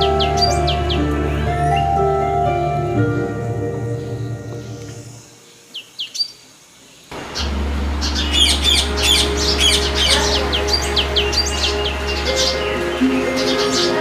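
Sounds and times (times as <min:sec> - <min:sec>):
music: 0:00.0 - 0:05.4, 0:07.4 - 0:14.0
songbirds chirping: 0:00.0 - 0:14.0
steady low hum: 0:07.1 - 0:13.1.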